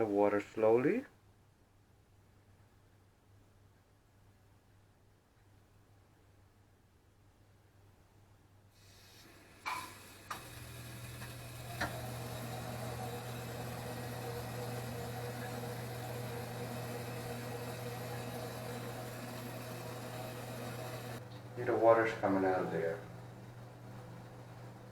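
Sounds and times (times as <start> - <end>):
water heater humming: 8.8 - 24.9
water heater clicks: 9.4 - 21.5.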